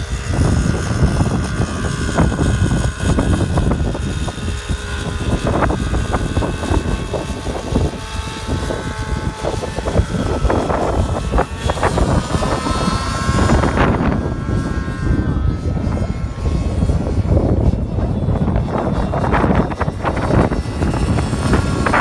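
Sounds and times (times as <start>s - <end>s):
model airplane engine droning: 0.0s - 22.0s
wind buffeting microphone: 0.0s - 22.0s.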